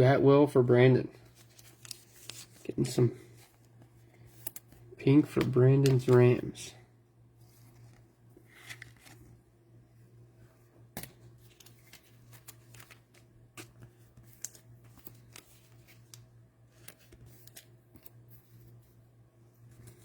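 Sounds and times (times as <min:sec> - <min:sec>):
steady low hum: 0:00.0 - 0:20.0
trading cards shuffling: 0:01.2 - 0:06.6, 0:07.4 - 0:09.4, 0:11.0 - 0:19.0.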